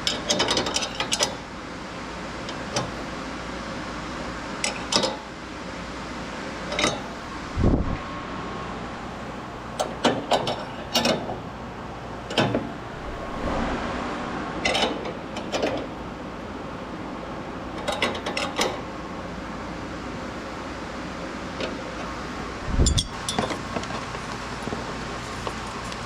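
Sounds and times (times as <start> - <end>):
steady low hum: 11.6 - 17.6.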